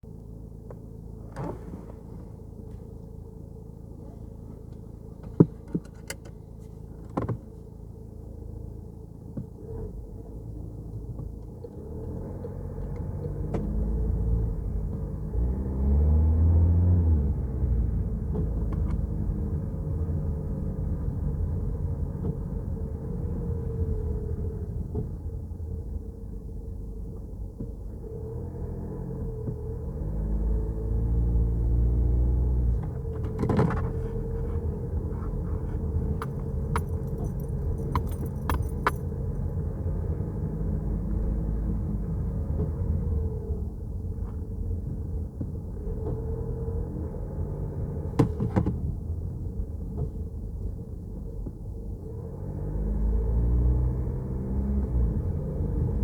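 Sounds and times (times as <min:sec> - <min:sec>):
car engine and road rumble: 0:00.0 - 0:56.0
metallic clicks or jingles: 0:35.6 - 0:39.4.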